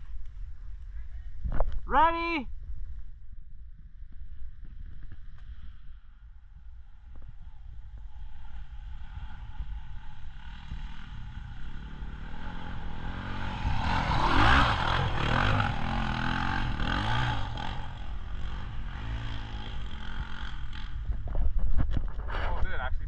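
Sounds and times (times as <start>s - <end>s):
dirt bike engine revving: 8.2s - 21.2s.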